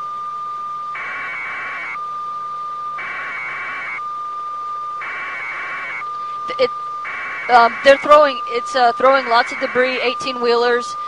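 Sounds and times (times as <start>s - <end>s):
buzzy warbling alert tone: 5.0s - 10.7s
electronic beep: 5.0s - 10.7s.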